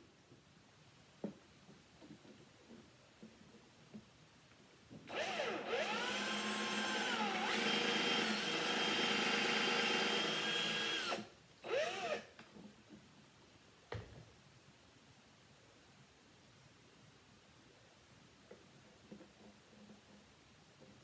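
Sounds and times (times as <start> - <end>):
electric drill whining: 5.1 - 12.3.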